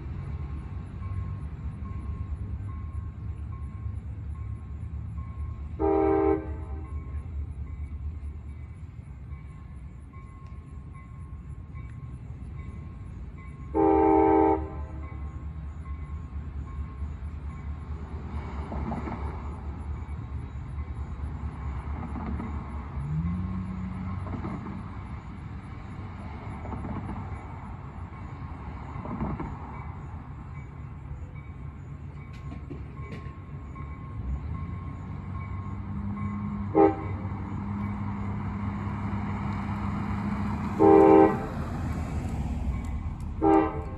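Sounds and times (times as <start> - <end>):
diesel locomotive rumbling: 0.0 - 43.9
locomotive horn: 5.8 - 7.0, 13.7 - 15.2, 36.3 - 37.4, 40.6 - 41.7, 43.3 - 43.9.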